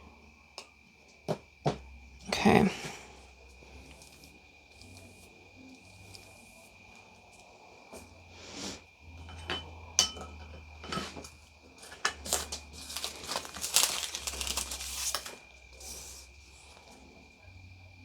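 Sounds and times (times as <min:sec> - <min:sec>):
crinkling and crackling: 0:02.9 - 0:08.2, 0:10.6 - 0:17.3.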